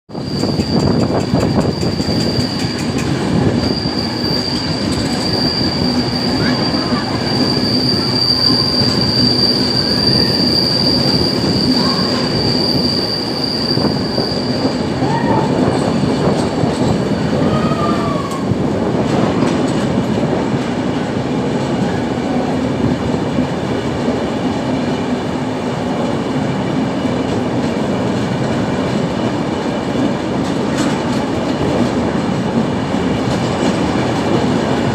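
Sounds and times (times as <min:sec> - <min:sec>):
high wheel squeal: 0:00.1 - 0:18.5
train rumble and clatter on rails: 0:00.1 - 0:34.9.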